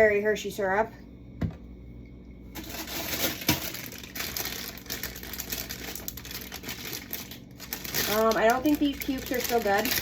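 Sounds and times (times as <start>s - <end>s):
plastic packaging crinkling: 2.6s - 10.0s.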